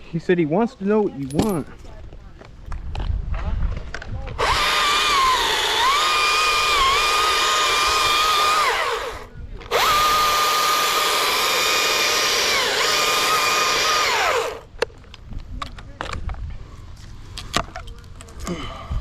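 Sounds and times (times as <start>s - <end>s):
power tool motor whining: 4.4s - 14.7s.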